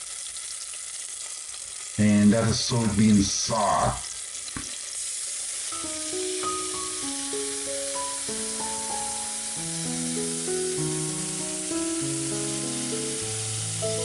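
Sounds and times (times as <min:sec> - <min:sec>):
onion sizzling in oil: 0:00.0 - 0:14.0
background music melody: 0:05.7 - 0:14.0.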